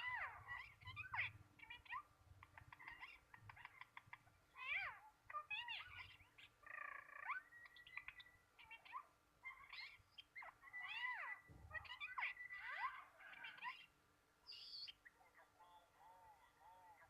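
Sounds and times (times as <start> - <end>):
pet bird whistled calls: 14.5 - 15.2.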